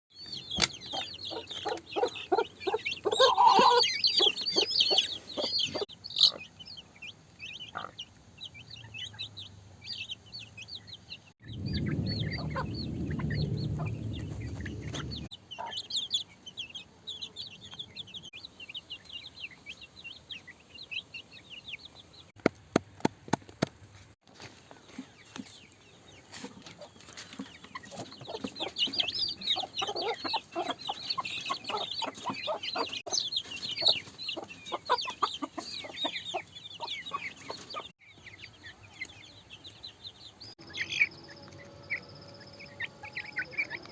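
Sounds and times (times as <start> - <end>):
hen clucking: 0.6 - 6.7, 7.5 - 8.2, 26.4 - 38.5
low rumbling noise: 11.4 - 15.3.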